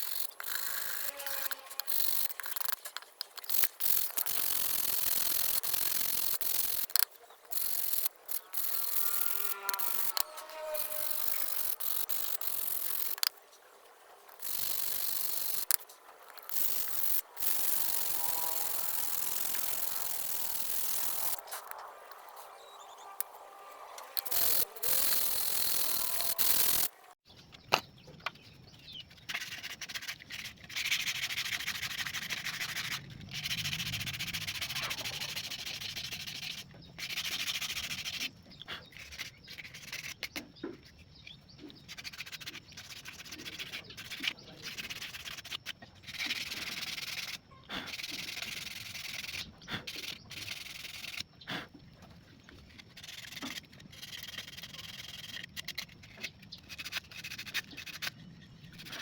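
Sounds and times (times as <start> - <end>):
sandpaper rubbing on wood: 0.0 - 2.8, 3.4 - 13.3, 16.4 - 22.3, 24.0 - 27.0, 29.3 - 38.3, 41.9 - 51.2.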